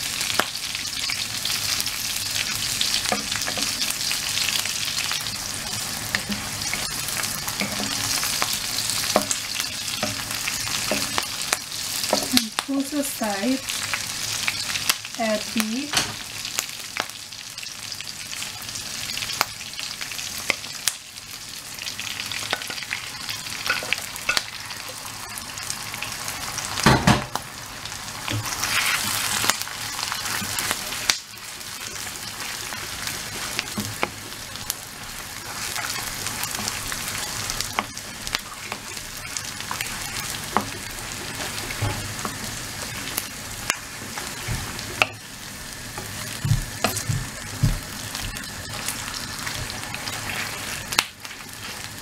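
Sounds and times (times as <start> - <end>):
beef sizzling in a wok: 0.0 - 52.0
spatula scraping a wok: 28.5 - 29.4.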